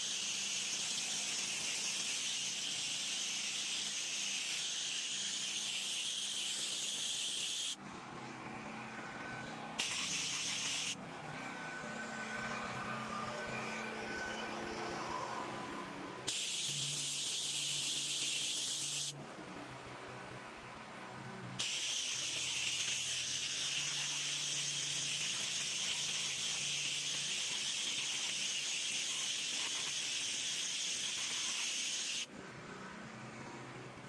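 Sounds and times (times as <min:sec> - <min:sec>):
spray nozzle hissing: 0:00.0 - 0:07.8, 0:09.8 - 0:11.0, 0:16.3 - 0:19.1, 0:21.6 - 0:32.3.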